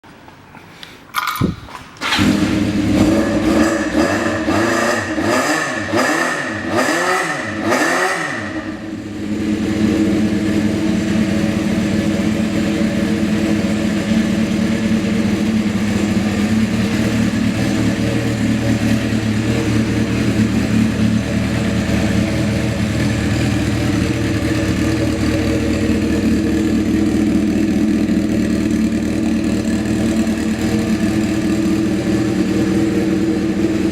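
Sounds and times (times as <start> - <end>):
motorcycle engine cranking: 1.1 - 3.5
motorcycle engine revving and idling: 1.3 - 33.9.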